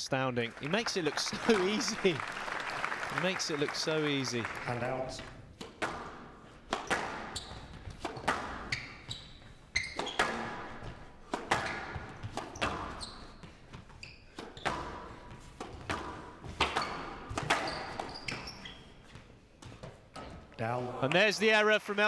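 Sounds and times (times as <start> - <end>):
squash ball hitting rackets and walls: 4.8 - 20.4
shoes squeaking on court floor: 4.8 - 20.6.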